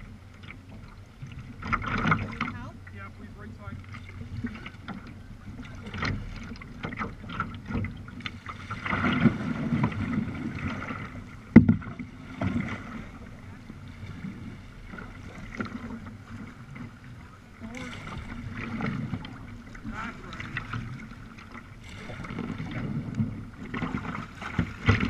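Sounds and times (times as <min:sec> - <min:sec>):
paddle splashing in water: 0:00.0 - 0:25.0
small knocks on kayak: 0:11.5 - 0:12.8.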